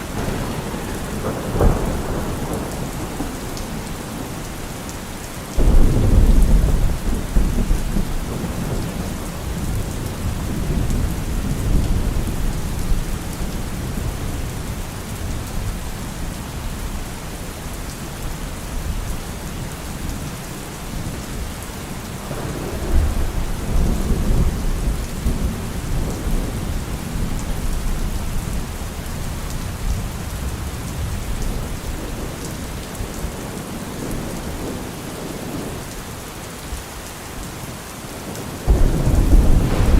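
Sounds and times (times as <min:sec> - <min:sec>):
thunder rumbling: 0:00.0 - 0:05.0, 0:05.6 - 0:16.6, 0:22.2 - 0:35.8, 0:38.7 - 0:39.9
steady rain: 0:00.0 - 0:39.9.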